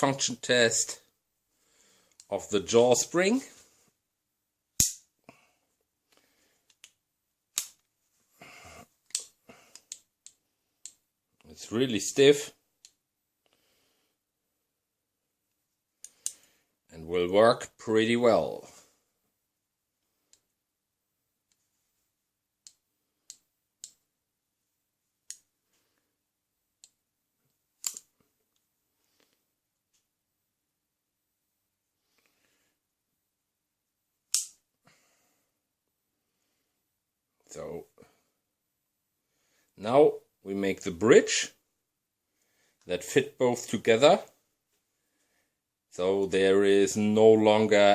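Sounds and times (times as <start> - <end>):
sharp metallic snaps: 4.8 - 5.1, 6.7 - 7.9, 27.8 - 28.2, 34.3 - 34.6
sharp metal clicks of a gun lock: 34.3 - 34.6.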